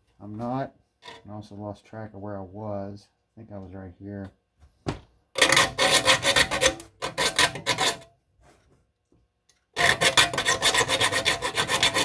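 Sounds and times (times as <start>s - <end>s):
file rasping on saw teeth: 5.4s - 8.0s, 9.8s - 12.0s.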